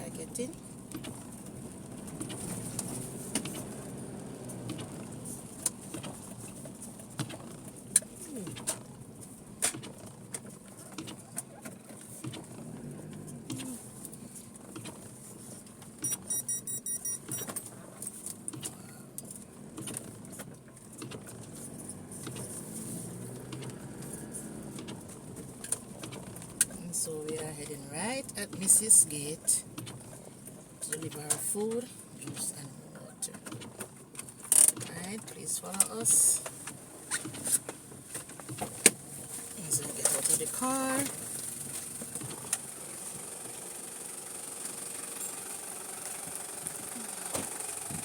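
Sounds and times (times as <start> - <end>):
car driving on rough road: 0.0 - 48.0
high electronic beeps: 16.0 - 17.5.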